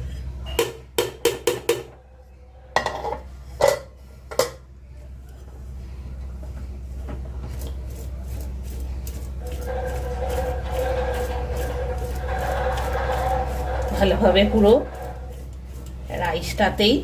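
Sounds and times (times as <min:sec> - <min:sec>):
steady low hum: 0:00.0 - 0:17.0
stirring rice: 0:07.3 - 0:16.9.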